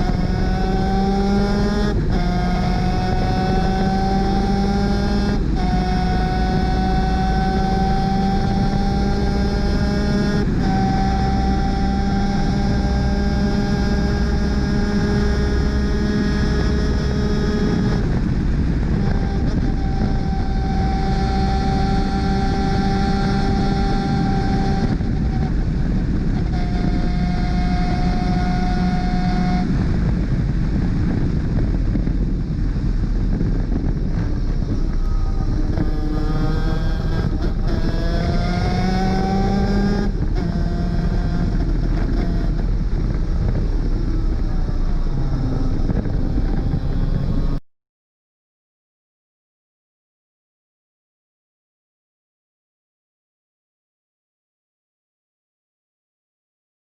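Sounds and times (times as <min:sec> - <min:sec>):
racing engine at high revs: 0:00.0 - 0:32.2, 0:33.1 - 0:47.6.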